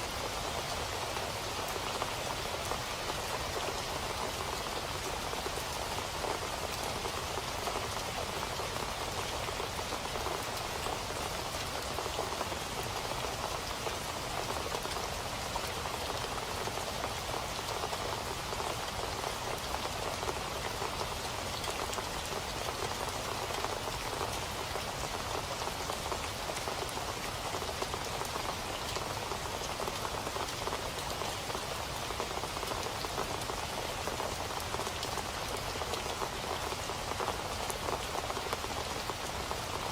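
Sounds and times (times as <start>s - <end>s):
rain falling: 0.0s - 39.9s
raindrops hitting a surface: 0.0s - 39.9s.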